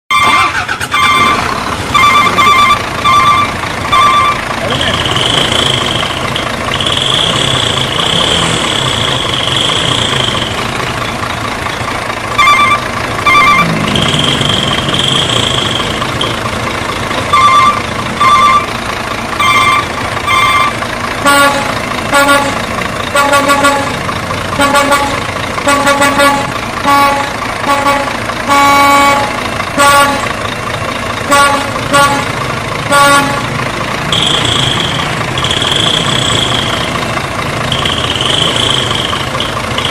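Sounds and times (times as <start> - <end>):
high paired car horn beeps: 0.1 - 10.8, 12.4 - 16.4, 19.4 - 24.0, 24.6 - 30.4, 31.3 - 37.0, 37.6 - 39.9
low car horn tooting rapidly: 0.1 - 11.0, 12.4 - 16.5, 19.4 - 24.0, 24.6 - 30.4, 31.2 - 39.9
steady high-pitched tone: 1.6 - 11.2, 34.0 - 39.9.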